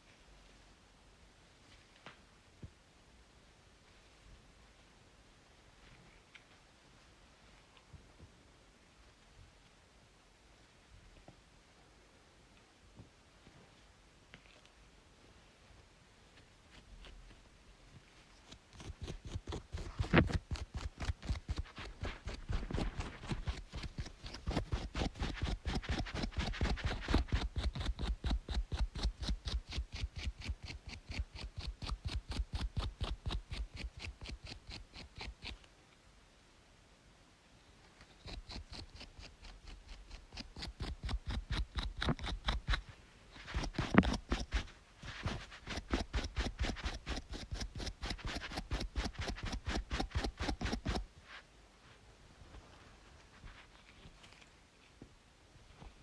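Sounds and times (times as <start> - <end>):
scratching on scalp: 18.1 - 35.7, 38.0 - 51.4, 53.1 - 54.5.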